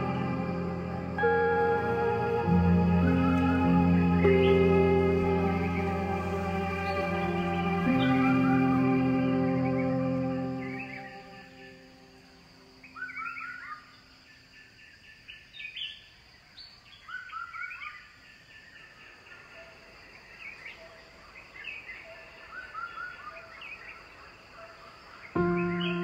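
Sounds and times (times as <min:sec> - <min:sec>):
music: 0:00.0 - 0:12.5, 0:25.4 - 0:26.0
birds chirping: 0:00.0 - 0:14.3, 0:20.2 - 0:26.0
faint outdoor background: 0:00.0 - 0:26.0.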